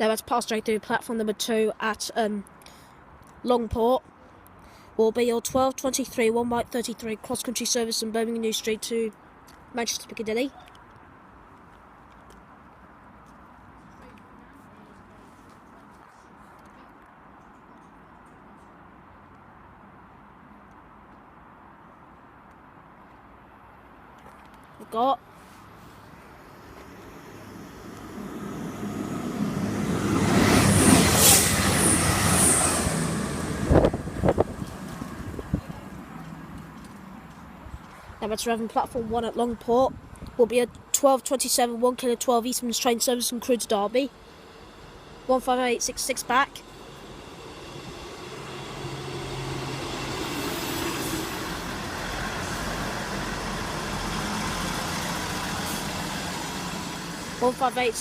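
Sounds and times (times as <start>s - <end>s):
diesel train passing: 25.2s - 40.0s, 40.8s - 58.0s.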